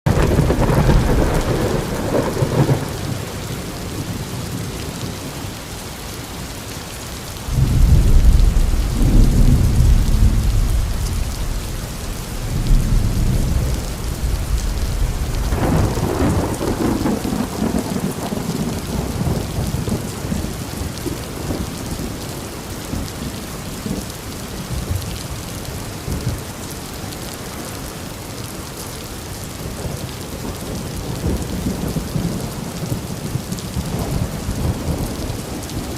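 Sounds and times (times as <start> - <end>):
rolling thunder: 0.1 - 5.1, 7.5 - 22.2
steady rain: 0.1 - 35.9.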